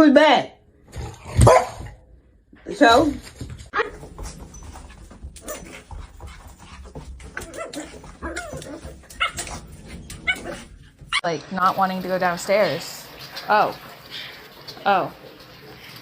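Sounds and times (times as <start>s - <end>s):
dog whining: 7.4s - 11.2s.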